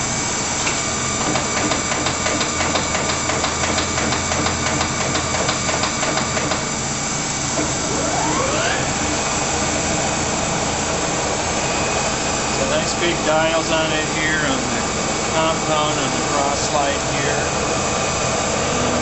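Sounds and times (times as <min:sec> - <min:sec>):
lathe running: 0:00.0 - 0:19.0
rising machine whine: 0:07.0 - 0:19.0.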